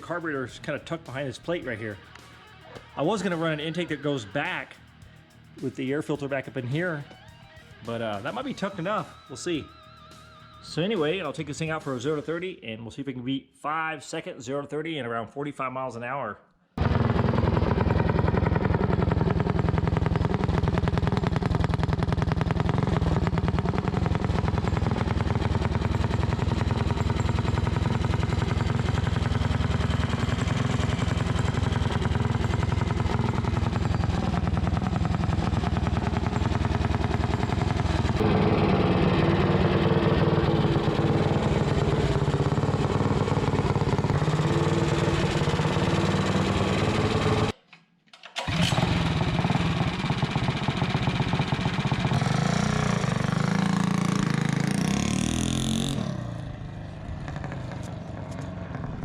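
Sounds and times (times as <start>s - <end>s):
mini bike engine running: 16.8s - 47.5s, 48.4s - 59.0s.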